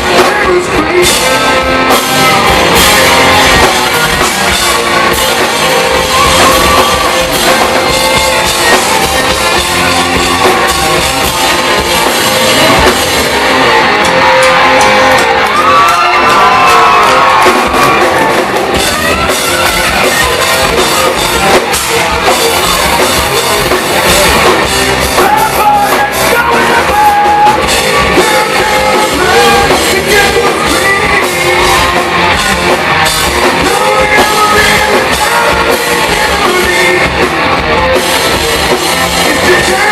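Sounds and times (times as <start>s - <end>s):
person singing: 0.0s - 2.9s, 25.1s - 37.6s, 38.3s - 39.9s
live rock band playing: 0.0s - 39.9s.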